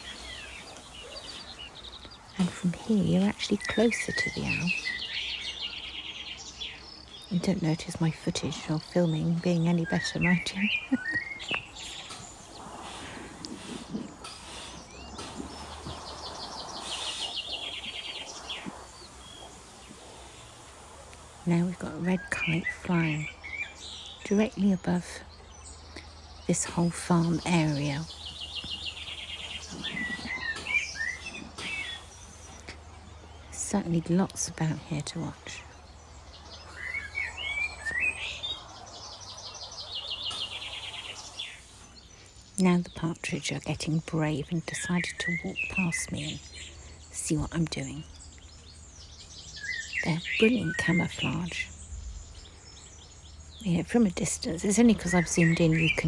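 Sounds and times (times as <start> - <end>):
rapid high bird chirps: 0.0 - 7.4, 9.6 - 24.3, 25.3 - 34.0, 35.6 - 42.6
songbirds whistling: 0.0 - 56.0.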